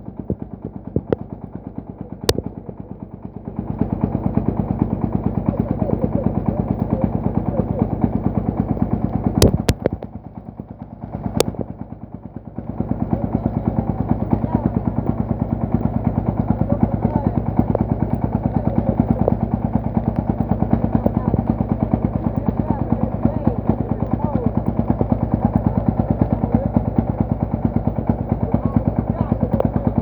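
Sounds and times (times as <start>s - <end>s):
diesel engine chugging: 0.0s - 30.0s
sharp cracks: 6.3s - 10.4s.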